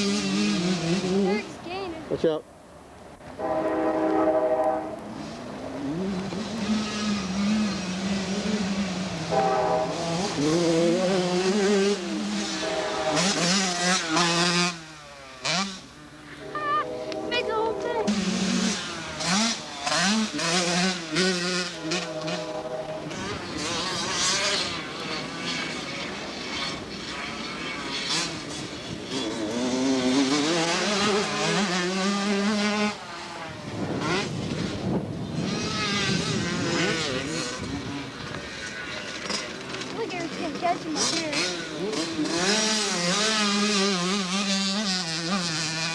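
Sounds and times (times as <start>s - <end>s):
motocross bike engine revving: 0.0s - 1.8s, 3.4s - 45.9s.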